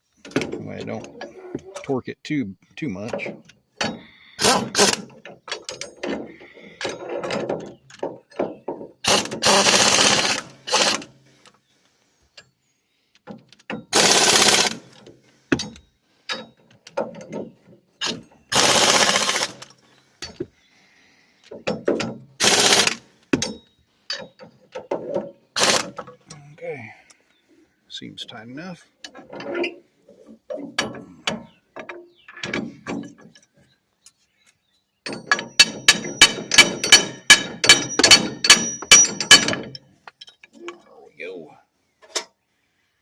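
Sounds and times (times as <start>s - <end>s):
pneumatic impact wrench bursts: 4.4s - 5.1s, 9.0s - 11.1s, 13.9s - 15.0s, 18.0s - 19.7s, 22.4s - 23.1s, 25.6s - 26.0s
metal clinking: 21.5s - 26.4s, 35.0s - 40.8s.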